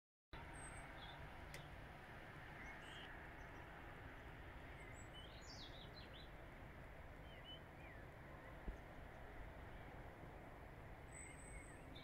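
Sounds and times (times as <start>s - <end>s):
small birds chirping: 0.4s - 1.8s, 2.4s - 6.5s, 7.1s - 10.1s, 11.0s - 12.0s.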